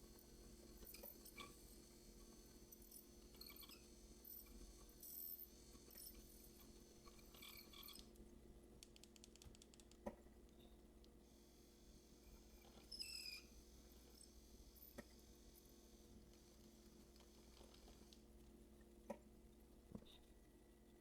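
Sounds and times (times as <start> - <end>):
tiny clicks: 8.8 - 11.2.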